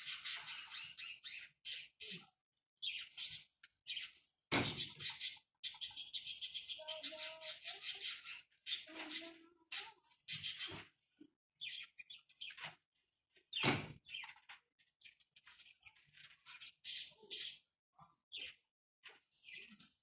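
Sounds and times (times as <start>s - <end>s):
parrot squawking and chattering: 0.0s - 10.9s.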